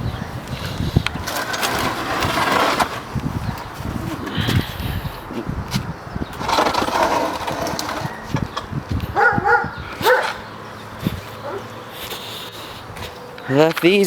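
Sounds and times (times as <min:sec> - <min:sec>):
dog whining yelps: 0:09.2 - 0:10.4, 0:11.4 - 0:11.7.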